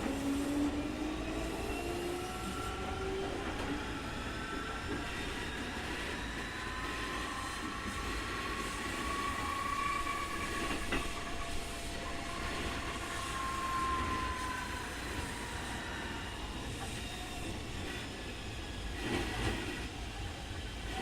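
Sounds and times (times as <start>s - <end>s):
high electric train motor whine: 0.0s - 21.0s.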